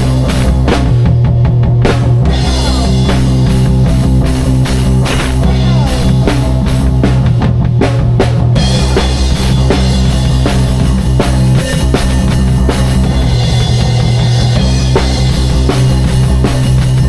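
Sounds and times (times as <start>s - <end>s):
bass notes: 0.0s - 17.0s
drum kit beat: 0.0s - 17.0s
guitar notes: 2.2s - 6.9s.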